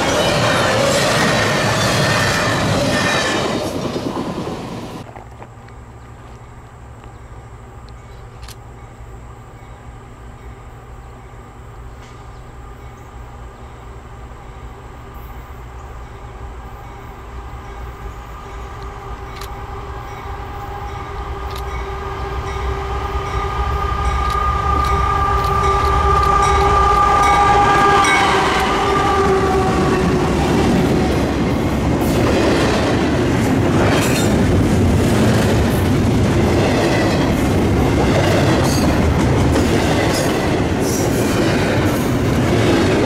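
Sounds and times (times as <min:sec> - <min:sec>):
freight train rumble: 0:00.0 - 0:43.0
locomotive horn chord: 0:17.8 - 0:30.8.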